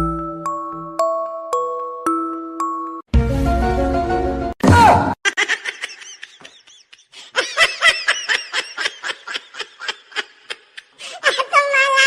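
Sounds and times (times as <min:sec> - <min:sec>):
high-pitched giggling: 0:05.2 - 0:12.0.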